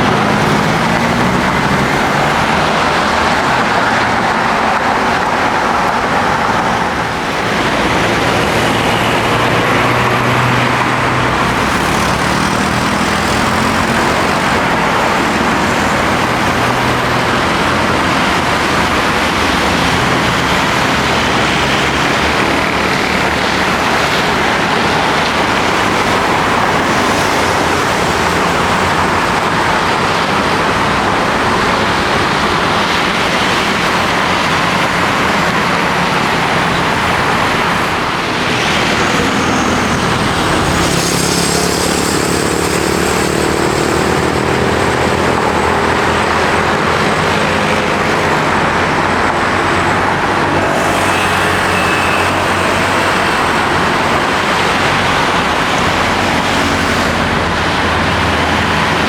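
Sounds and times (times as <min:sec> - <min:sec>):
jet engine noise: 0:00.0 - 0:59.0
steady engine tones: 0:00.0 - 0:59.0.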